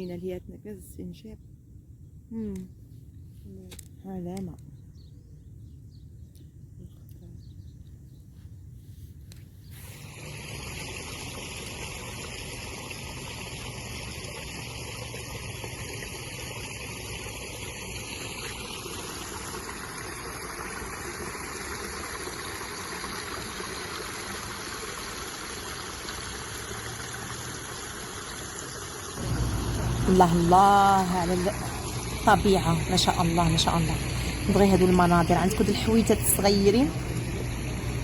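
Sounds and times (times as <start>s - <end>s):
stream water babbling: 10.1s - 38.0s.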